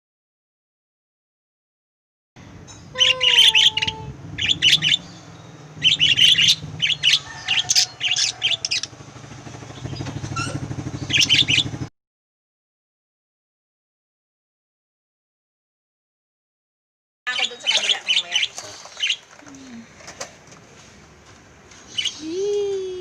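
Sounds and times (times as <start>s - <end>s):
lovebirds chirping: 2.6s - 9.0s, 9.6s - 11.9s, 17.3s - 20.3s, 21.6s - 23.0s.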